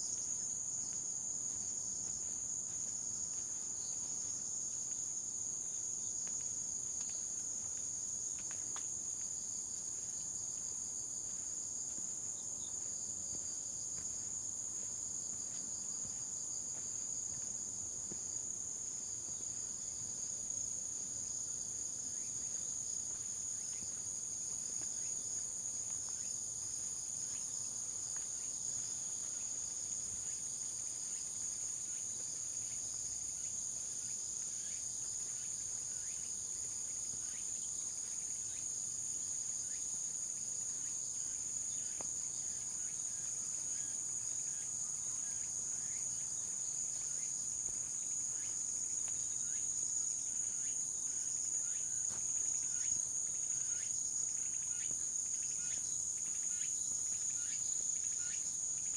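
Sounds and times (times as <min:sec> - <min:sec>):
insects chirping: 0:00.0 - 0:58.9.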